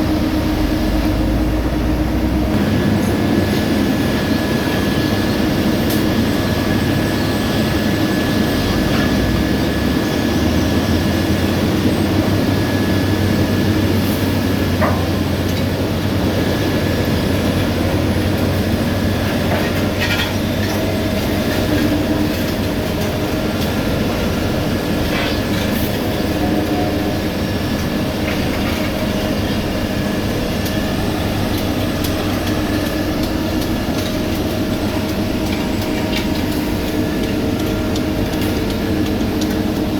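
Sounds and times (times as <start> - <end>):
diesel engine hum: 0.0 - 39.9.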